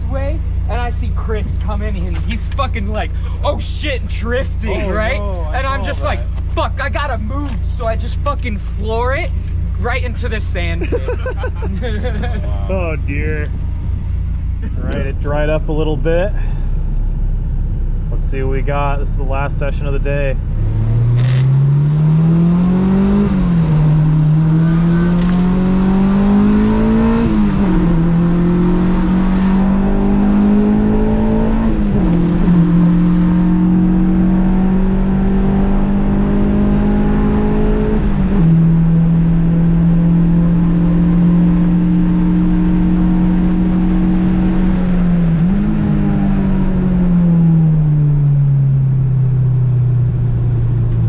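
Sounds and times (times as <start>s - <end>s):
car engine revving through gears: 20.4s - 48.7s.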